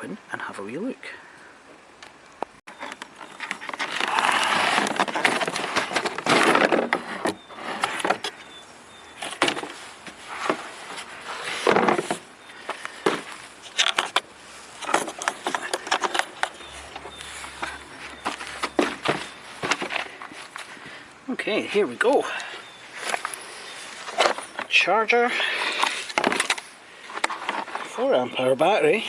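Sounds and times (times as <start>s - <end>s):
packaging rustling and tearing: 2.8s - 8.4s
box clicks and knocks: 14.8s - 20.1s.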